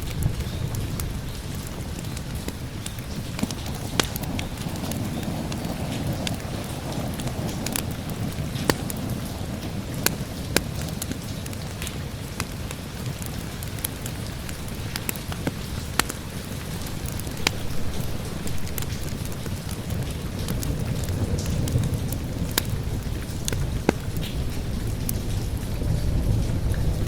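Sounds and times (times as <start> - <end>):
steady rain: 0.0 - 27.0
wood fire crackling: 0.0 - 27.0.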